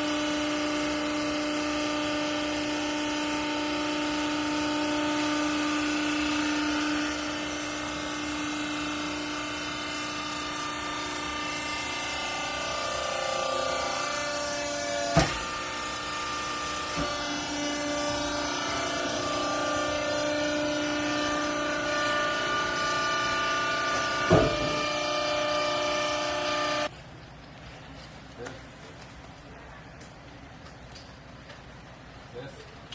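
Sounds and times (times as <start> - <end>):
hydraulic motor and pump whining: 0.0 - 26.9
sharp knocks: 24.2 - 24.9.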